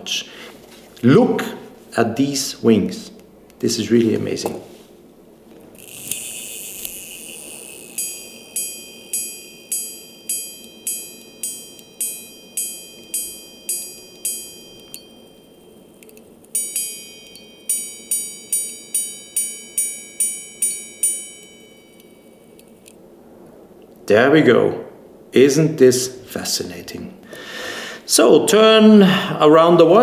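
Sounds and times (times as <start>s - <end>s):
watch chiming on gongs: 5.8s - 23.0s.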